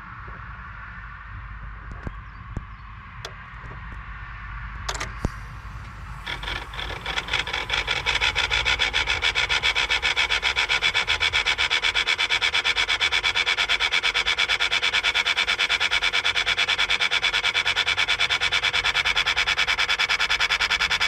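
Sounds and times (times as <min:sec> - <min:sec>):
rapidly pulsing rasp: 0:05.4 - 0:21.0.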